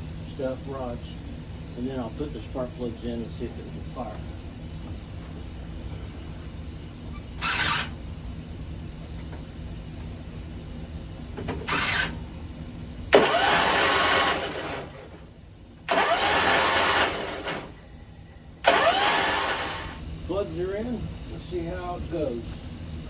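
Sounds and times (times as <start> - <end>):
rising starter whine: 0.0 - 23.0
engine cranking by starter: 11.5 - 12.2, 13.1 - 15.3, 15.9 - 17.9, 18.6 - 20.0.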